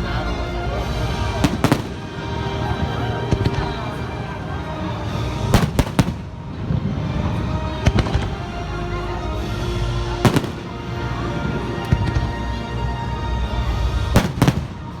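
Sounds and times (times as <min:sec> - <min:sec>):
fireworks bursting in bangs: 0:01.3 - 0:02.2, 0:05.5 - 0:06.8, 0:07.8 - 0:08.4, 0:10.2 - 0:10.8, 0:14.1 - 0:15.0.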